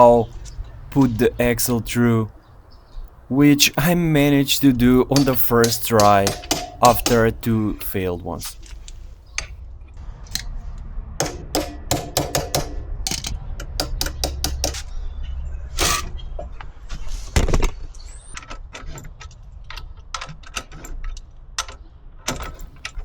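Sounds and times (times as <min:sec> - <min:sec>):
metallic clicks of hand tools: 0:04.7 - 0:07.6.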